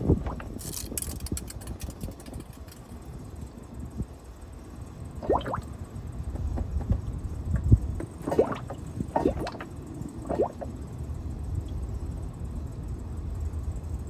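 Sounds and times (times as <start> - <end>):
motor oil gurgling and glugging: 0.0 - 0.6, 5.2 - 11.1
low steady rumble: 0.0 - 14.0.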